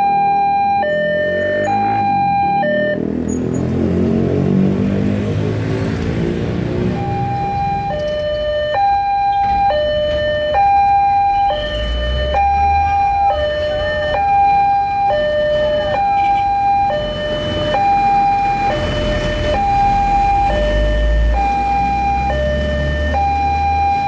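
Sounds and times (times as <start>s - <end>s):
two-tone level crossing alarm: 0.0s - 3.2s, 6.9s - 24.0s.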